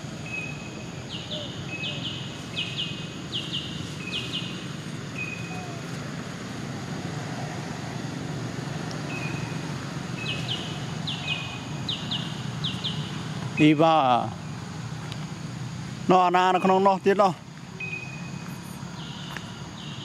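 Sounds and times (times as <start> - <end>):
bird whistle and chirps: 5.2 - 5.8, 10.2 - 13.2, 17.8 - 20.0.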